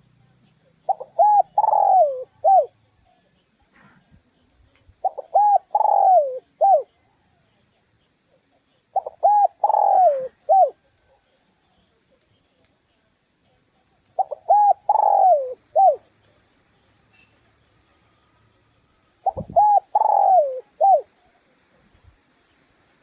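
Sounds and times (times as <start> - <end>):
dove cooing: 0.6 - 2.8, 5.0 - 7.0, 8.3 - 11.3, 14.2 - 16.2, 19.2 - 21.8.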